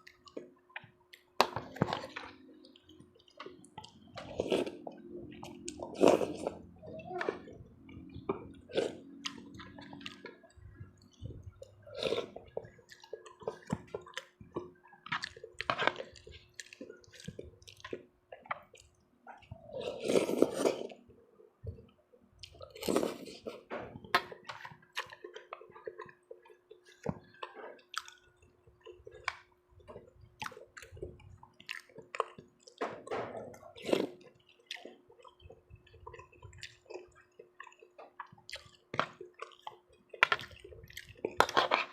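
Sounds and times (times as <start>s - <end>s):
wet chewing and smacking: 0.0s - 41.9s
slurps: 3.4s - 14.0s, 18.5s - 21.1s.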